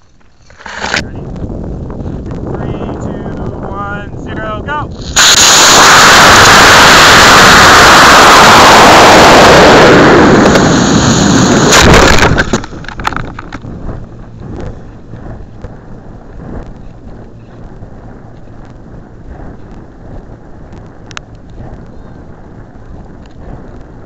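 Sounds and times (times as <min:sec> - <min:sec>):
scattered crackles and clicks: 0:00.0 - 0:03.6, 0:11.6 - 0:24.0
wind rush: 0:00.7 - 0:24.0
rocket motor roaring: 0:04.9 - 0:24.0.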